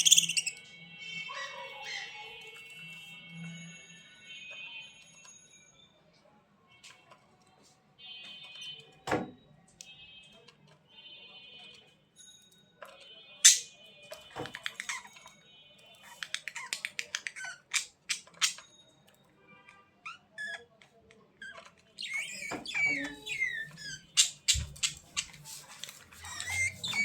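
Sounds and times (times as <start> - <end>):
sharp bird chirp: 0.0 - 0.6.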